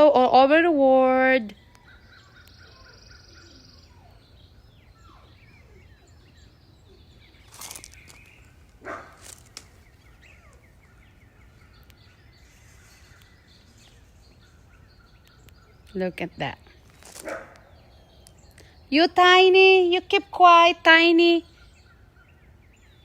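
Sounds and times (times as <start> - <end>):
birds chirping and calling: 0.0 - 23.0.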